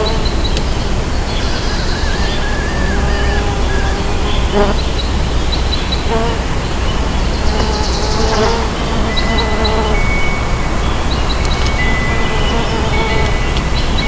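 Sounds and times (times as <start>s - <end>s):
bees buzzing in flight: 0.0s - 5.4s, 6.0s - 14.0s
steady background hum: 0.0s - 9.3s.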